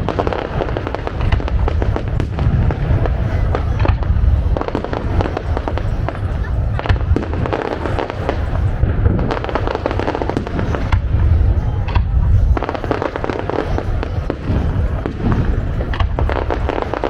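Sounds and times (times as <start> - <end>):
fireworks bangs and crackling pops: 0.0 - 17.0.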